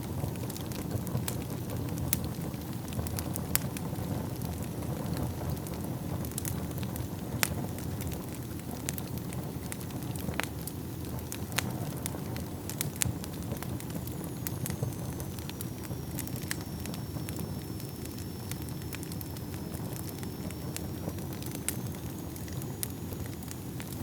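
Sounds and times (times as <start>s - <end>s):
fire crackling and popping: 0.0s - 24.0s
low rumble of flames: 0.0s - 24.0s
faint high whistling tone: 14.0s - 24.0s.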